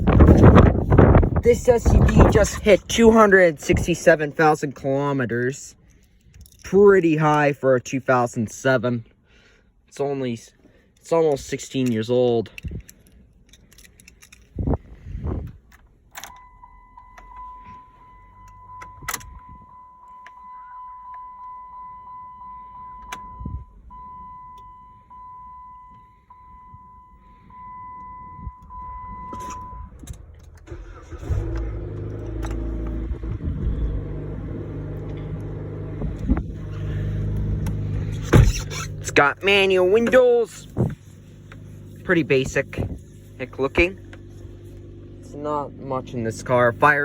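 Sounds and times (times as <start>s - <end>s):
car engine starting and idling: 0.0s - 10.0s, 10.6s - 47.0s
keys clicking in ignition: 5.2s - 7.6s, 10.9s - 25.1s, 25.8s - 45.2s
dashboard warning chime: 16.3s - 30.0s.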